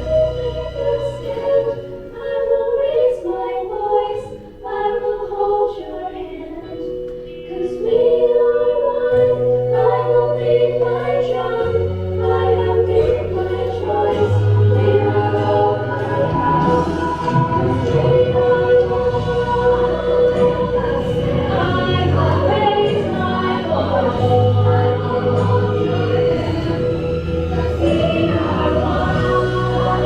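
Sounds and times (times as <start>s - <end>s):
choir singing slow song: 0.0s - 30.0s.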